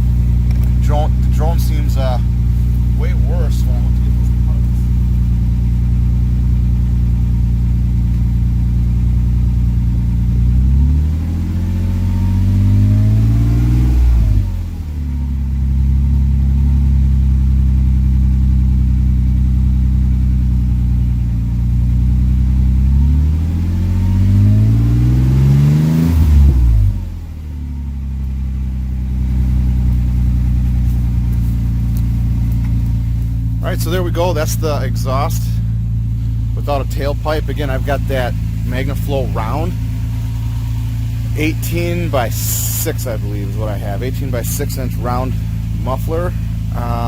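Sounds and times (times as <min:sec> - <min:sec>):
truck engine idling: 0:00.0 - 0:13.5, 0:14.1 - 0:47.0
engine revving: 0:00.0 - 0:47.0.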